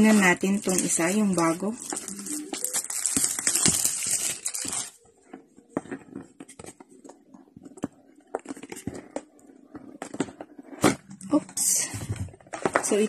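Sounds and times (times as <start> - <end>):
plastic wrap and cardboard crinkling: 0.0 - 7.2.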